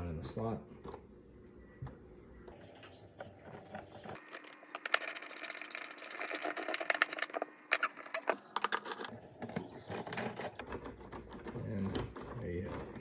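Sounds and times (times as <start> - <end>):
hard plastic parts clicking: 3.2 - 13.0.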